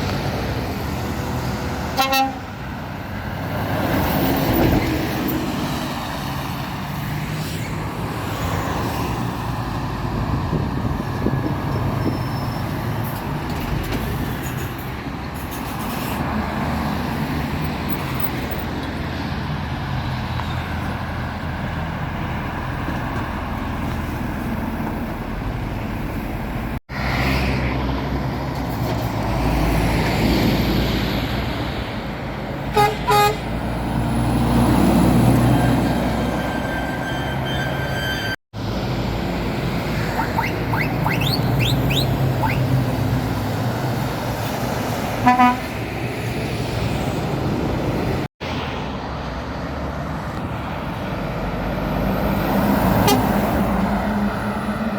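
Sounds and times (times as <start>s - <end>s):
heavy lorries passing: 0.0s - 54.9s
lorry horn toots: 2.0s - 2.5s, 32.7s - 33.4s, 45.2s - 45.7s, 53.0s - 53.4s.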